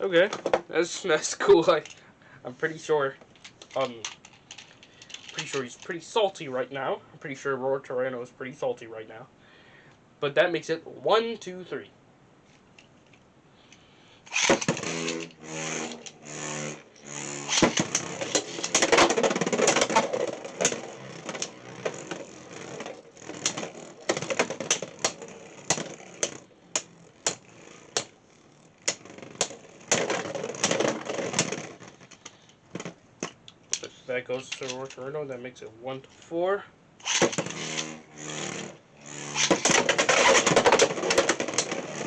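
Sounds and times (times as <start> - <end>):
launcher whirring pulls: 13.7 - 35.0, 37.0 - 42.0
spinning tops clashing: 14.3 - 28.2, 28.8 - 31.8, 37.0 - 42.0.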